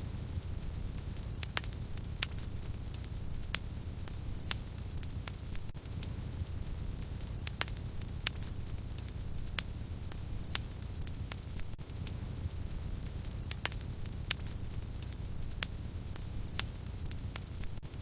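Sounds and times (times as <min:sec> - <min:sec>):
fire burning in fireplace: 0:00.0 - 0:18.0
fire crackles and pops: 0:00.0 - 0:18.0.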